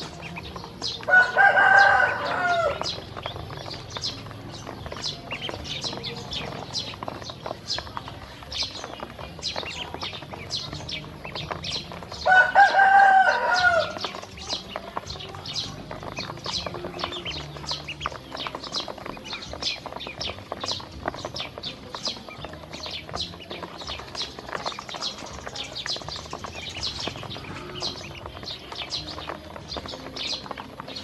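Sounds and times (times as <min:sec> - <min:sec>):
ducklings peeping: 0:00.0 - 0:31.0
rooster crowing: 0:01.1 - 0:03.0, 0:12.2 - 0:14.1.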